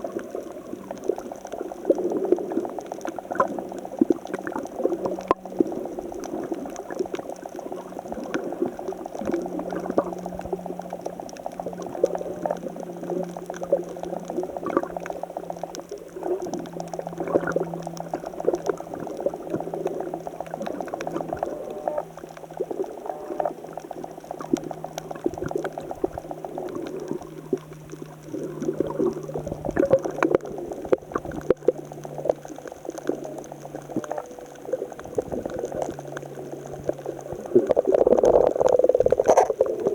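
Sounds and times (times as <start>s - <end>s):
small crackles and pops: 0.0s - 39.9s
steady low hum: 0.0s - 39.9s
seawater churning among rocks: 22.6s - 39.9s.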